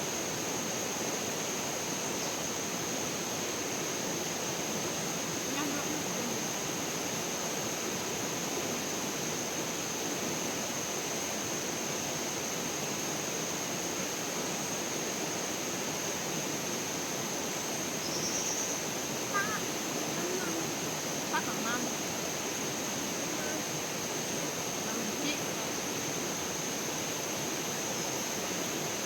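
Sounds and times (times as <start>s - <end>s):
flowing water rushing: 18.8s - 29.0s.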